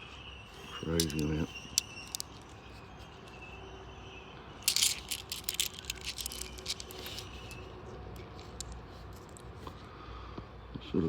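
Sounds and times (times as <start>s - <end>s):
coins clinking and jingling: 0.8s - 2.6s, 4.6s - 9.4s.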